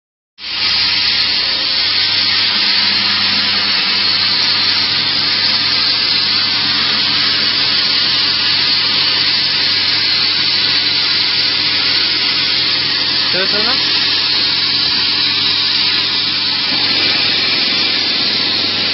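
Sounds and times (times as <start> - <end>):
plasma torch cutting metal: 0.4 - 18.9.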